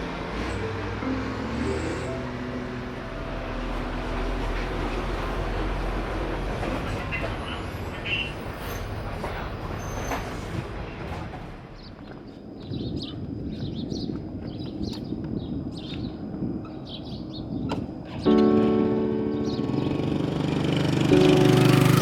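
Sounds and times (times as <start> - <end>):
wind and road rumble: 0.0 - 22.0
motorbike engine running: 19.6 - 22.0.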